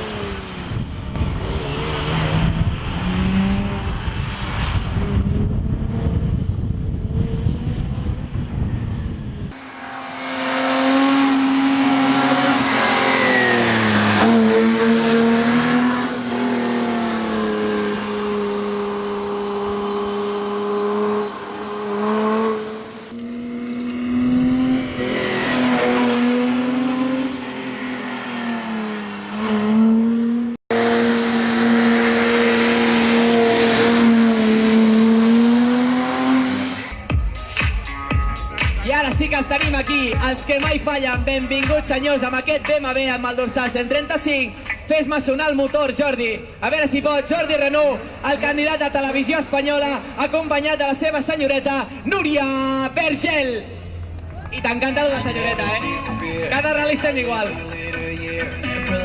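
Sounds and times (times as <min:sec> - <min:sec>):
car engine revving under load: 0:00.0 - 0:37.1.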